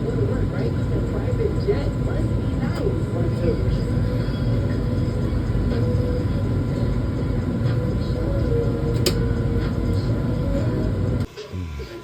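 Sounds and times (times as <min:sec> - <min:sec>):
machinery rumble and hum: 0:00.0 - 0:11.3
sharp click: 0:09.0 - 0:09.2.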